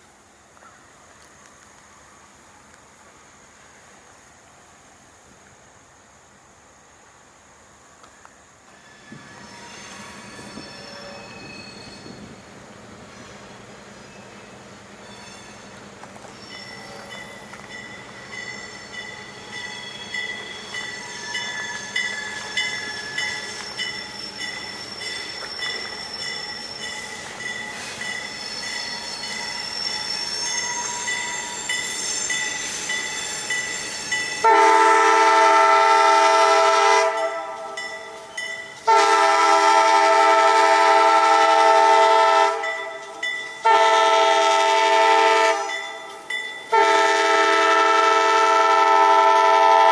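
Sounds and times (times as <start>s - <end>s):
train running noise: 0.0s - 49.9s
locomotive chord horn blasts: 34.4s - 37.8s, 38.8s - 43.0s, 43.6s - 45.7s, 46.7s - 49.9s.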